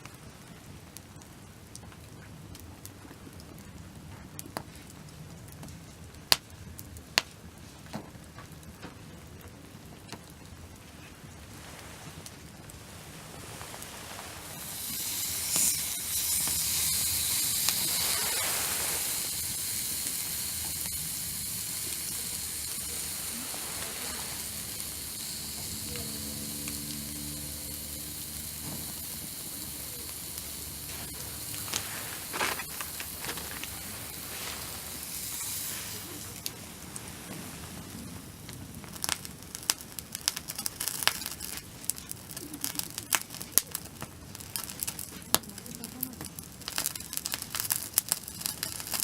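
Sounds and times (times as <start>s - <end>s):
food sizzling on a grill: 11.1s - 49.0s.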